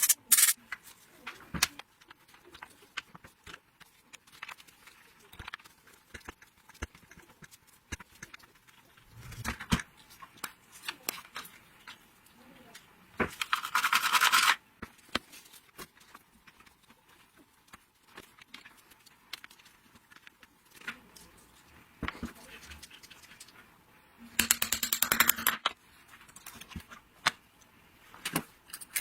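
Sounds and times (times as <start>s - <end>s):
metal tools clicking and tapping: 0.0s - 0.6s, 24.4s - 26.7s, 28.3s - 29.0s.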